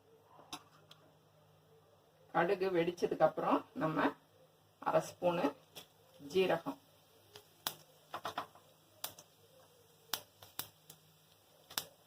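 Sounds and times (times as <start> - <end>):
seeds popping in hot oil: 2.4 - 12.0.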